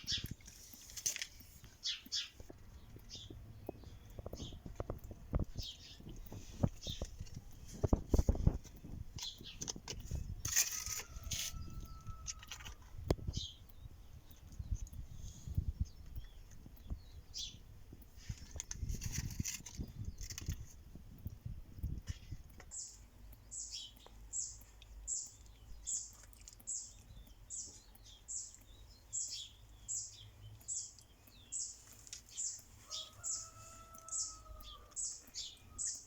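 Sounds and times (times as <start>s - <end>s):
small bird chirping: 0.0s - 36.0s.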